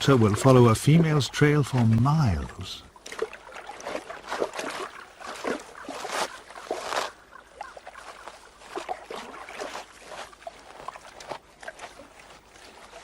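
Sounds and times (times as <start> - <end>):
otter crunching through snow: 3.8 - 13.0.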